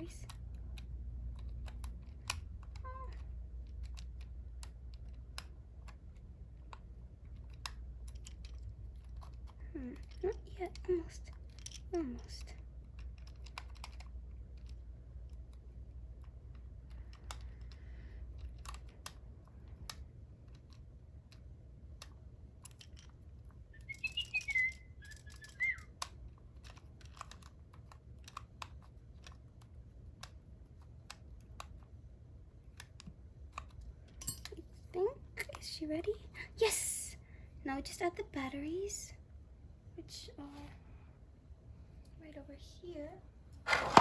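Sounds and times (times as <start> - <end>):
chirping whistle: 23.8 - 25.9.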